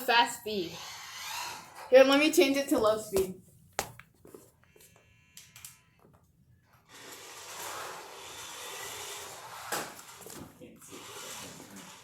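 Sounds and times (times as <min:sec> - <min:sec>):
toy car electric motor whirring: 0:00.5 - 0:01.9, 0:06.7 - 0:12.0.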